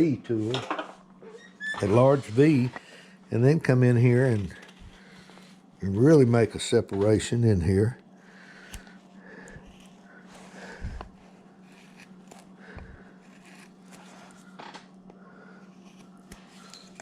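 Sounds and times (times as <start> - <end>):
carving tool scraping wood: 9.6 - 10.0, 11.5 - 14.5, 15.7 - 17.0.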